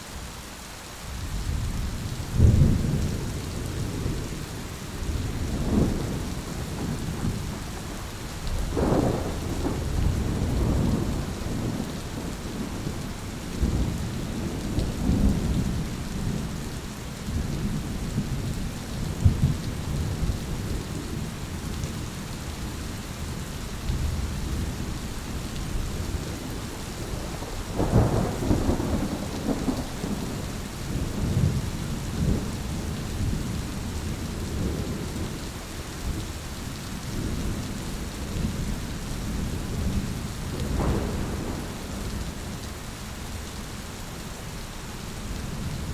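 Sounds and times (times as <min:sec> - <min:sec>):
steady rain falling: 0:00.0 - 0:45.9
rolling thunder: 0:02.3 - 0:16.6, 0:17.2 - 0:21.3, 0:25.6 - 0:35.3, 0:37.1 - 0:42.7.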